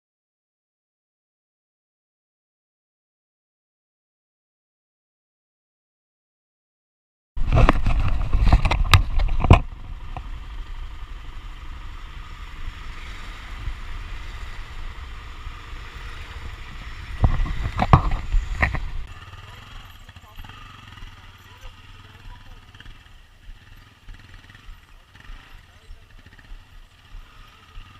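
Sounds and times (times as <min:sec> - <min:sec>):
wind buffeting microphone: 0:07.4 - 0:19.1.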